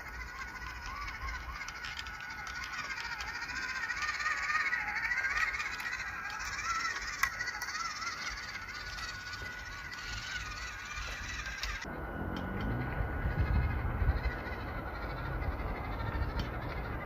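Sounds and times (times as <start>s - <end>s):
faint clicks: 0.0s - 12.7s
electric motor and gearbox whining: 0.0s - 17.0s.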